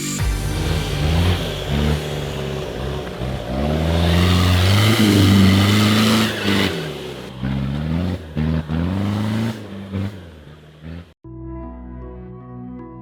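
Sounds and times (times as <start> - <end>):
engine revving: 0.0 - 11.2.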